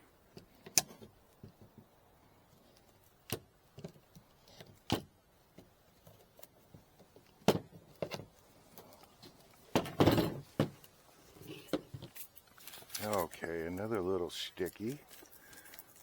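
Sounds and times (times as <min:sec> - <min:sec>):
wooden frames clattering: 0:09.7 - 0:10.8
wooden frames knocking and clacking: 0:09.7 - 0:10.8.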